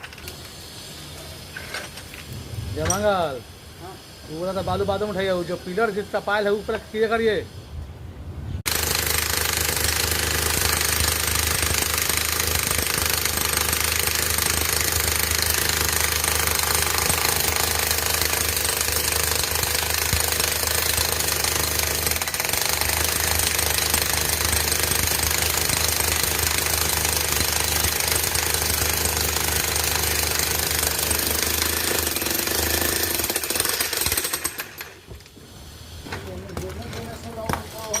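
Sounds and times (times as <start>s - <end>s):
jackhammer hammering concrete: 8.7s - 35.1s.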